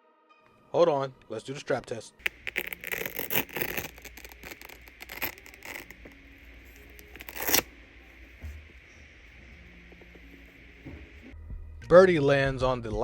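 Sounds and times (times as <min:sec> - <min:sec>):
hook-and-loop strap ripping: 0:02.2 - 0:07.7
shoe being handled: 0:02.2 - 0:07.7.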